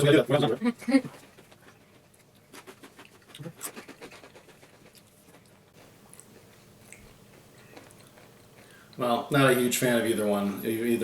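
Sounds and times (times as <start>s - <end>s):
crunching of chips being chewed: 1.6s - 9.0s.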